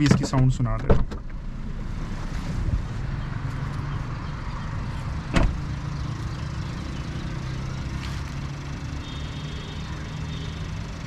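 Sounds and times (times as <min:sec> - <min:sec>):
car door thump: 0:00.0 - 0:01.4, 0:05.3 - 0:05.6.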